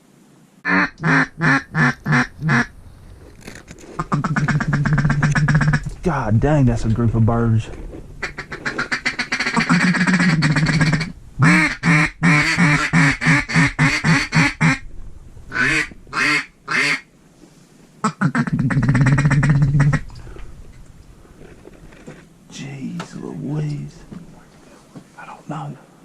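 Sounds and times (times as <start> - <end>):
duck call quacking: 0.6 - 2.7, 4.0 - 5.9, 8.2 - 14.8, 15.5 - 17.1, 18.0 - 20.0.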